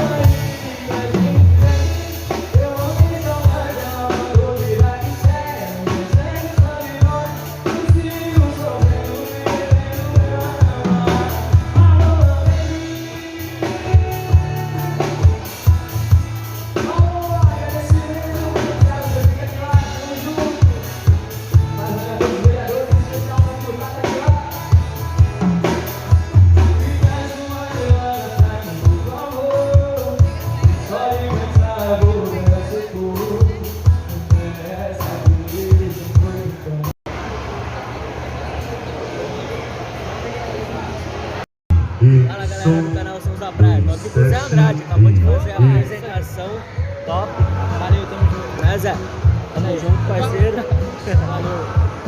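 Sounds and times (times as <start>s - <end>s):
person singing: 0.0s - 25.2s, 26.6s - 36.7s, 42.0s - 42.9s, 43.6s - 46.0s
drum-kit beat: 0.0s - 36.9s, 43.6s - 46.3s, 47.4s - 52.0s
bass: 0.0s - 40.3s, 41.7s - 52.0s.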